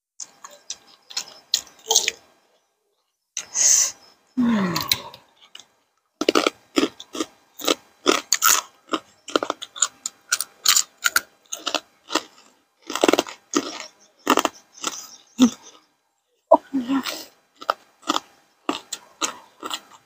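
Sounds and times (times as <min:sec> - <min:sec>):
crunchy chewing: 0:04.6 - 0:16.0, 0:17.0 - 0:20.0.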